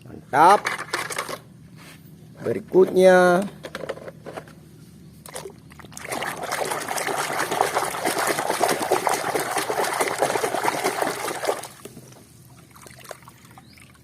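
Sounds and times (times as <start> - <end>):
water splashing over plastic toy: 6.0 - 11.9.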